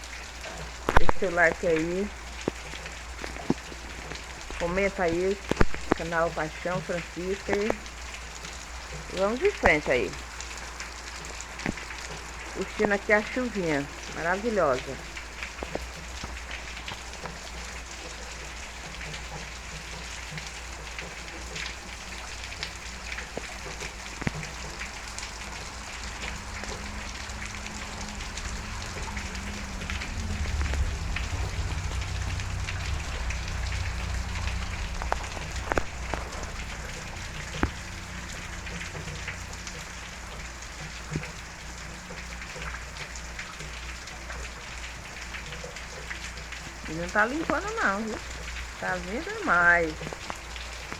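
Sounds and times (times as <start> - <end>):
heavy rain falling: 0.0 - 50.9
low rumble: 26.8 - 38.3.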